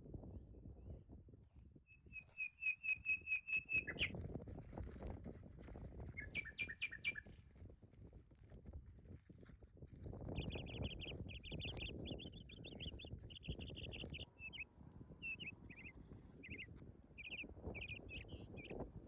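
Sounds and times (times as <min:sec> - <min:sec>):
small bird chirping: 0:01.9 - 0:04.2, 0:05.7 - 0:07.7, 0:09.9 - 0:18.8.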